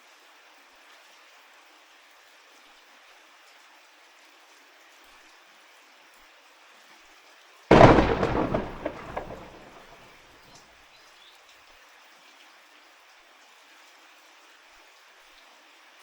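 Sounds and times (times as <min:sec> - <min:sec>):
light rain: 0:07.7 - 0:10.0
thunderclap rumbling: 0:07.7 - 0:10.0.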